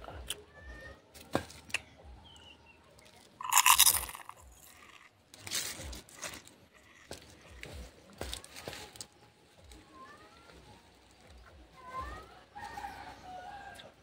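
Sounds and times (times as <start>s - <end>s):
chewing and crunching leaves: 2.9s - 14.0s.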